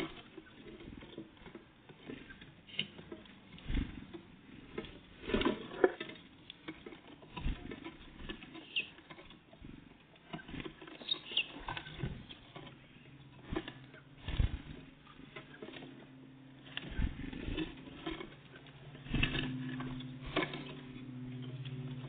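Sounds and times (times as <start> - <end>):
birds pecking and scrabbling: 0.0 - 22.0
high bird chirps: 8.6 - 9.0, 11.0 - 11.6.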